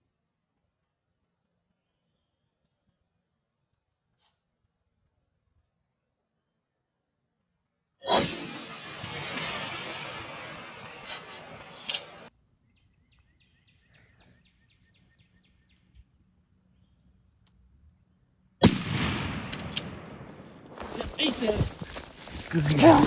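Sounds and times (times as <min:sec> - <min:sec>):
shotgun blast with echo: 0:08.1 - 0:12.3, 0:18.6 - 0:21.8
small clicks: 0:11.0 - 0:12.2
rustling: 0:19.6 - 0:23.0.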